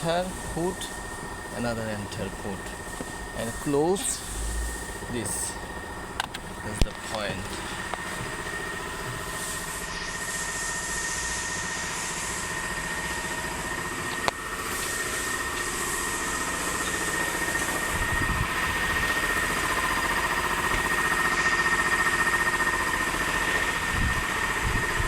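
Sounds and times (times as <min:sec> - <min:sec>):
car engine idling with whine: 0:00.0 - 0:25.0.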